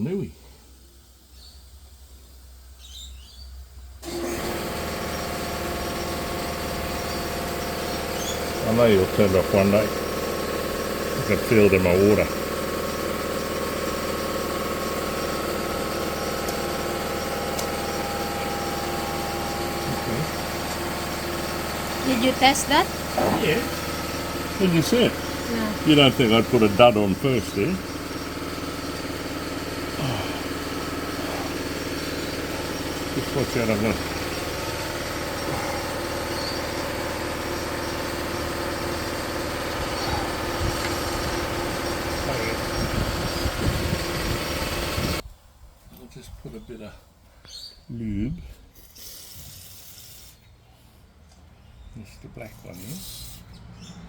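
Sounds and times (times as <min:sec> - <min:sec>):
motor humming: 0:04.0 - 0:45.2.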